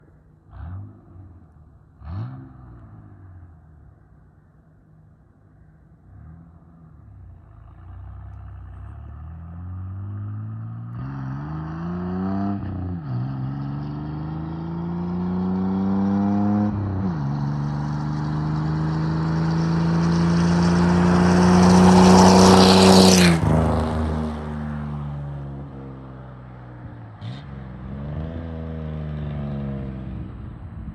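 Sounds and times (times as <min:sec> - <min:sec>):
engine accelerating hard: 0:08.0 - 0:30.9.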